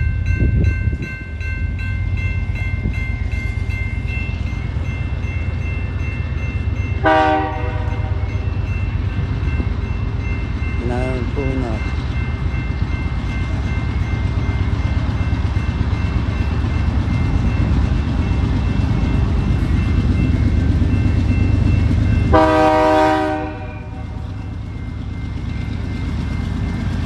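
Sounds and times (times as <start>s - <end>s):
diesel locomotive rumbling: 0.0s - 27.0s
train horn blast: 7.0s - 8.4s, 22.3s - 24.1s.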